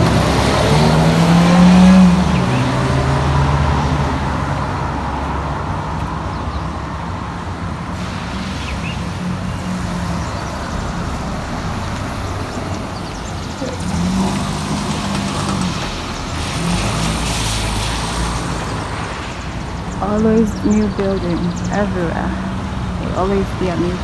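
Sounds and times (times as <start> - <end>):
low engine hum: 0.0 - 24.0
motor vehicles passing: 0.0 - 24.0
road noise: 0.0 - 24.0.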